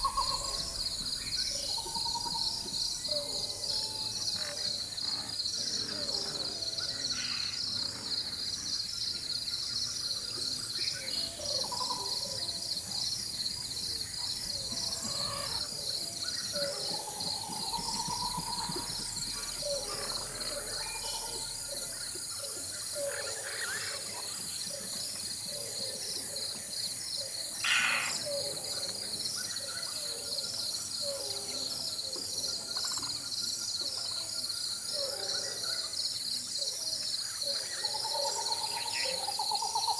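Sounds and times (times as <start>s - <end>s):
bird calls: 0.0s - 8.0s, 8.9s - 26.6s, 27.2s - 28.9s
insects chorus pulsing: 0.0s - 39.9s.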